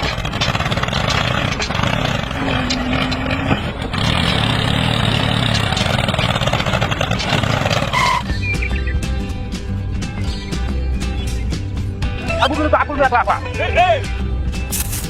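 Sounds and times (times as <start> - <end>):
engine-like machine running: 0.0 - 8.9.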